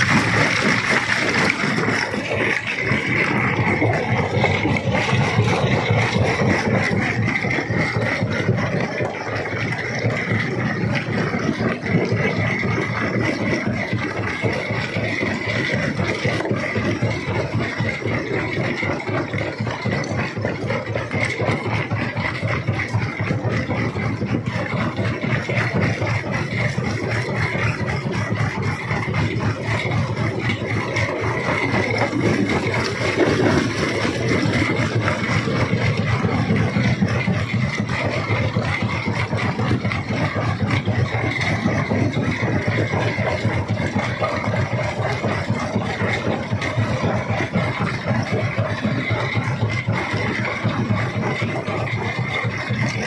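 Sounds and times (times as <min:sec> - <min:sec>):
rock crusher machinery drone: 0:00.0 - 0:53.0.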